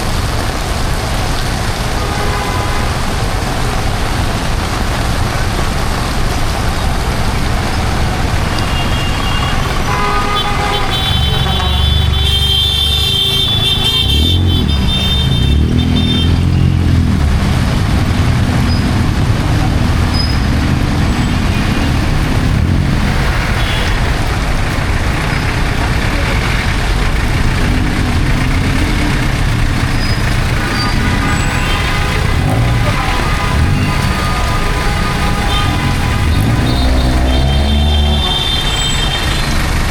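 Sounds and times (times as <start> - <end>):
heavy rain falling: 0.0 - 39.9
car horn: 2.0 - 3.0, 8.4 - 17.0, 23.4 - 24.1, 30.1 - 39.4
vehicle engines passing: 2.8 - 39.9.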